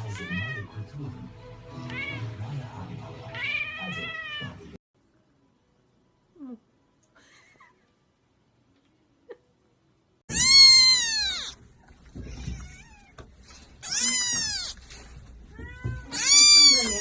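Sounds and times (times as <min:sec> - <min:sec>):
cat meowing loudly: 0:01.9 - 0:02.2, 0:03.4 - 0:04.6, 0:10.3 - 0:11.6, 0:12.2 - 0:13.2, 0:13.8 - 0:14.9, 0:15.5 - 0:17.0.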